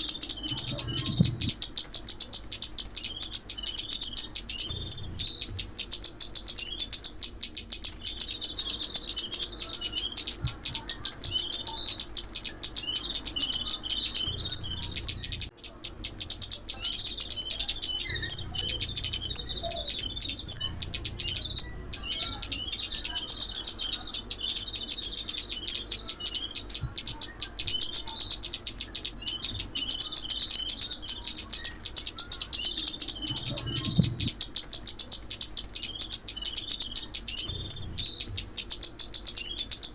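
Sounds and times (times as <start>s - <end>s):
songbird chirping and trilling: 0.0s - 39.9s
thin steady high tone: 0.0s - 39.9s.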